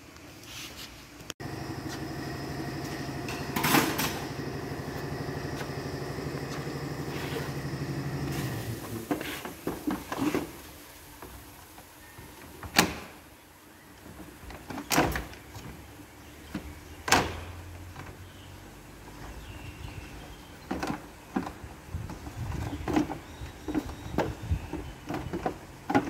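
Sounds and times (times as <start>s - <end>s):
vehicle engine idling: 1.4s - 9.0s.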